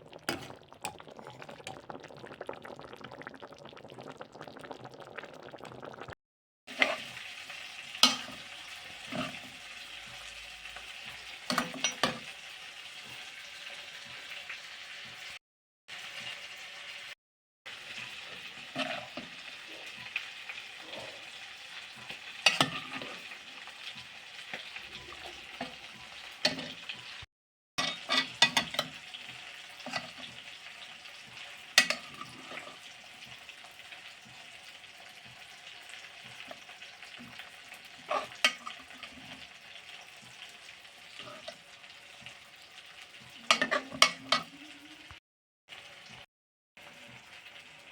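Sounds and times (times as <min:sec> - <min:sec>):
spatula scraping against a pan: 0:06.7 - 0:12.3, 0:18.0 - 0:21.1, 0:21.9 - 0:27.1, 0:27.8 - 0:30.6, 0:31.3 - 0:32.9, 0:35.2 - 0:44.8
food sizzling in a hot pan: 0:06.7 - 0:47.9.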